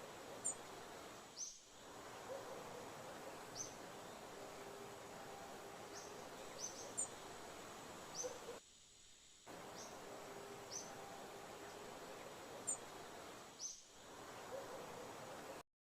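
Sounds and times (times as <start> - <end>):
outdoor background hiss: 0.0 - 15.6
high sweeping bird calls: 1.4 - 7.4, 9.5 - 15.6.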